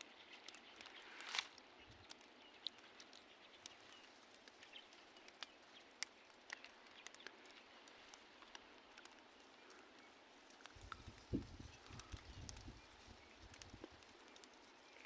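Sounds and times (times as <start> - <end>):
faint outdoor hiss: 0.0 - 15.0
small ticks and clicks: 0.0 - 15.0.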